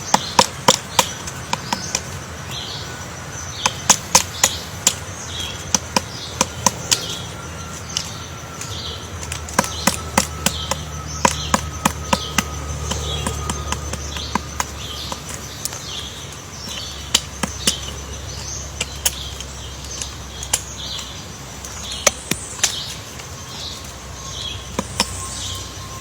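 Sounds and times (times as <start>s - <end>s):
high bird chirps: 0.0s - 26.0s
woodpecker tapping wood: 0.0s - 26.0s
low hum: 4.3s - 26.0s.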